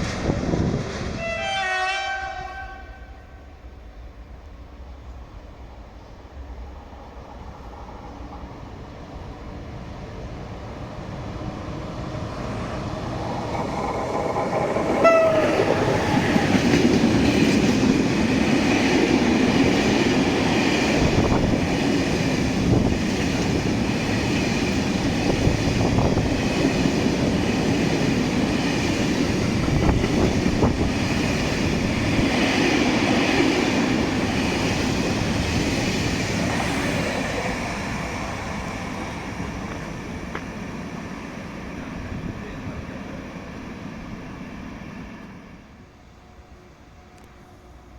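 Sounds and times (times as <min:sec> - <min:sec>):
train horn blast: 0:01.2 - 0:03.5, 0:15.0 - 0:15.9
train wagons rumbling: 0:10.2 - 0:45.2.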